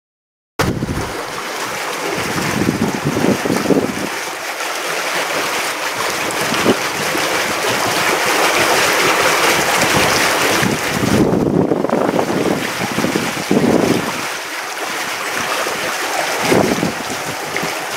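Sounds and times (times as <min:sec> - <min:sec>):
wind buffeting microphone: 0:00.6 - 0:04.4, 0:05.9 - 0:17.9
steady rushing noise: 0:00.6 - 0:14.1.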